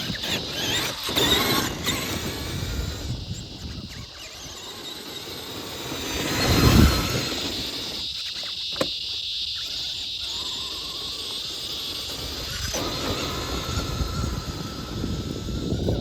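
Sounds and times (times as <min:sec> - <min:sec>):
wind on microphone: 0:00.0 - 0:04.2, 0:06.0 - 0:07.7, 0:12.4 - 0:16.0
toy truck electric motor: 0:00.0 - 0:16.0.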